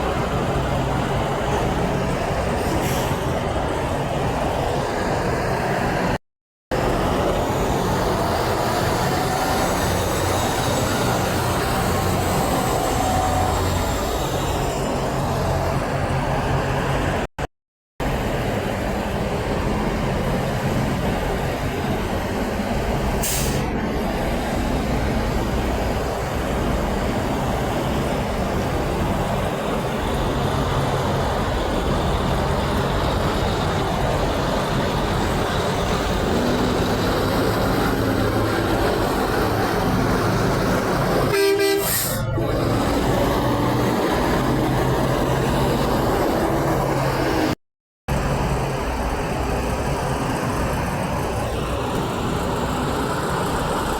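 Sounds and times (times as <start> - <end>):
truck traffic rolling by: 0.0 - 17.3, 18.0 - 53.9
short air hiss: 23.2 - 23.7
truck horn: 41.2 - 42.6.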